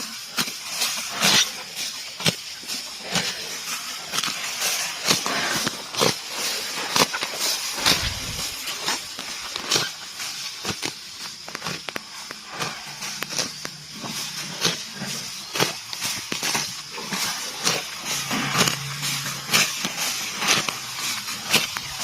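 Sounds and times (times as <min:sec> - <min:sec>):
rustling chewing: 0:05.3 - 0:10.0
grass tearing crunches: 0:06.8 - 0:13.8.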